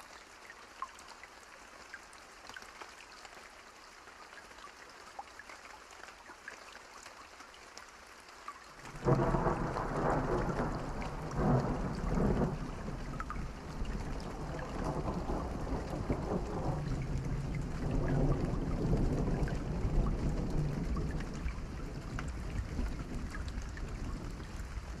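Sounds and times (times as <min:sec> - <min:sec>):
steady rain: 0:00.0 - 0:25.0
thunder rumble: 0:08.9 - 0:25.0.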